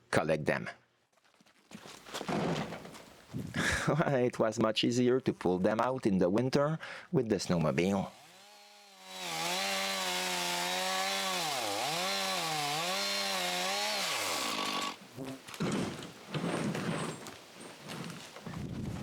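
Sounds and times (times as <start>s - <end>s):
chainsaw cutting through log: 7.5s - 15.0s.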